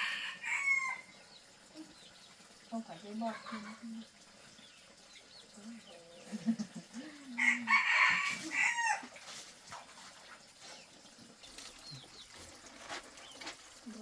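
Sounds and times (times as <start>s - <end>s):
rooster crowing: 0.0s - 1.1s, 7.4s - 9.1s.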